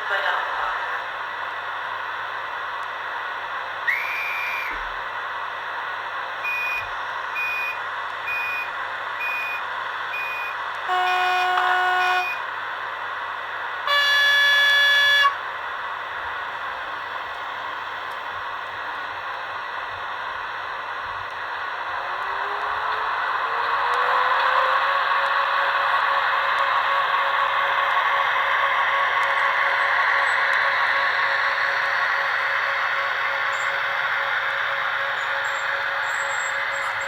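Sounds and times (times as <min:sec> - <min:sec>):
train horn blasts: 0:10.9 - 0:12.5, 0:13.8 - 0:15.5.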